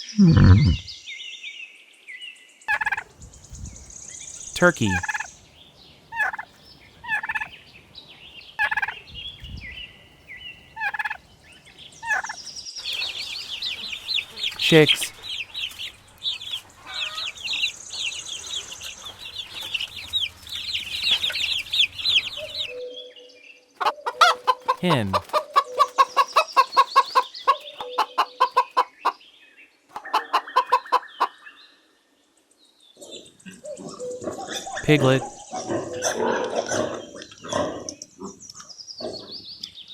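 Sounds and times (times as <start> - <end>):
hen clucking: 0.2 - 0.8, 2.7 - 3.0, 4.6 - 5.3, 6.1 - 7.5, 8.6 - 9.0, 10.8 - 11.2, 12.0 - 12.4, 23.8 - 29.2, 29.9 - 31.4
turkey gobbling: 2.7 - 3.0, 4.8 - 5.3, 6.2 - 6.4, 7.1 - 7.5, 8.6 - 9.0, 10.8 - 11.2, 12.1 - 12.4, 23.8 - 29.2, 30.0 - 31.3
dense high-pitched peeping: 4.8 - 5.3
high chirping: 23.8 - 29.0.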